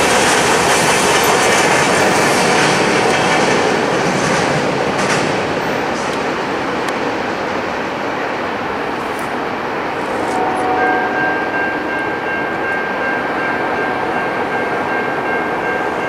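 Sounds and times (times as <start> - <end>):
freight train rolling past: 0.0 - 16.0
steady high-pitched tone: 8.2 - 16.0.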